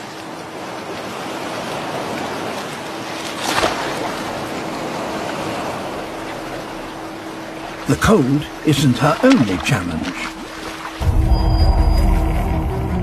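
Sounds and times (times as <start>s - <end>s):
sea surf: 0.0s - 13.0s
water splash: 1.0s - 11.2s.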